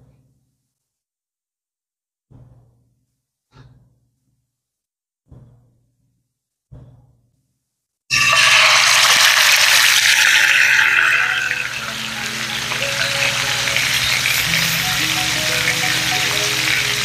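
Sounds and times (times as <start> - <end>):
food sizzling in hot oil: 8.1 - 17.0
background music: 10.2 - 17.0.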